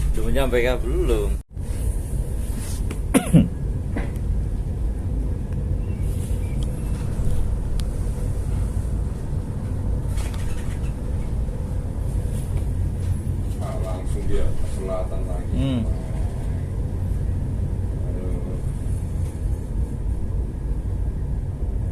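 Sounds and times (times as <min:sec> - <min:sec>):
ship engine rumble: 0:00.0 - 0:21.9.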